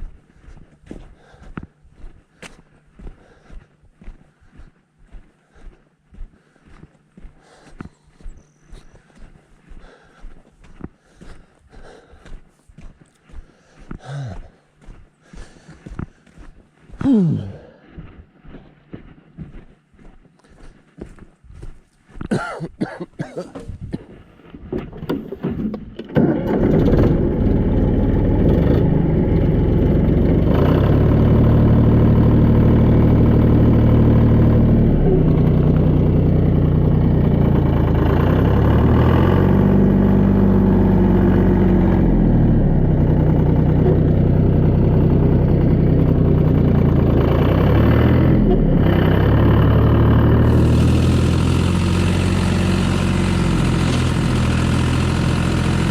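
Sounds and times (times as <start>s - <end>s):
tractor engine cranking and running: 24.5s - 55.9s.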